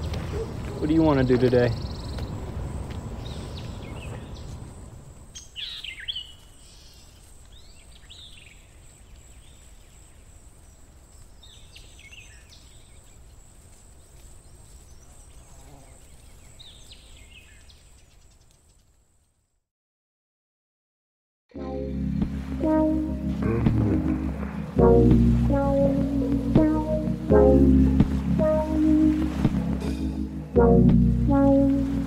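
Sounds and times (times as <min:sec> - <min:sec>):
birds chirping: 0:00.0 - 0:13.4.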